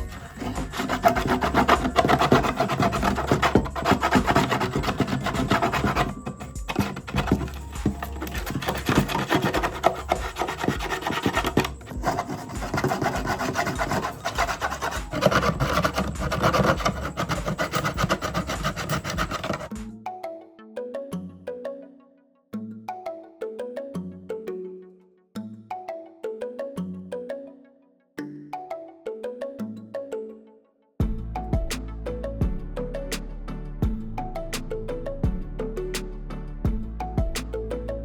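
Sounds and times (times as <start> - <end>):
abrasive scraping wood: 0.0 - 19.7.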